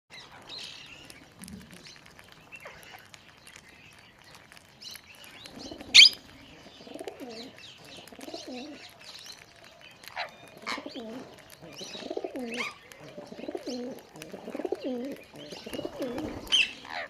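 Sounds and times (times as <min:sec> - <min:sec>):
birds chirping: 0:00.1 - 0:17.0
pigeons cooing: 0:05.2 - 0:17.0.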